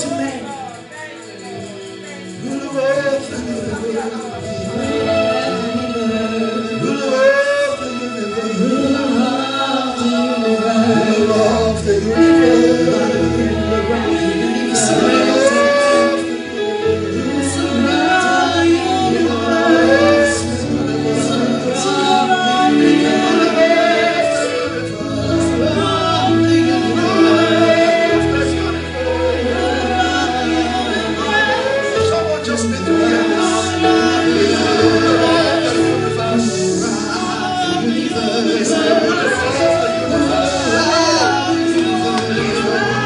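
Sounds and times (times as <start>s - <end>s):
gospel band: 0.0s - 43.0s
male and female voices singing: 1.2s - 43.0s.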